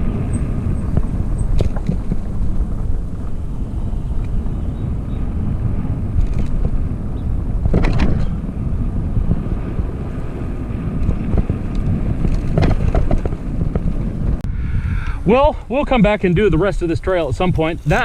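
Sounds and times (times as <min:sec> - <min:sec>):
bike knocks and rattles: 0:00.0 - 0:03.5, 0:06.1 - 0:09.9, 0:10.8 - 0:14.4
bike tyres rumbling on dirt: 0:00.0 - 0:14.4, 0:15.3 - 0:18.0
wind buffeting microphone: 0:00.0 - 0:18.0
sharp clatter: 0:00.2 - 0:03.4, 0:06.1 - 0:06.8, 0:07.6 - 0:08.4, 0:11.0 - 0:14.2.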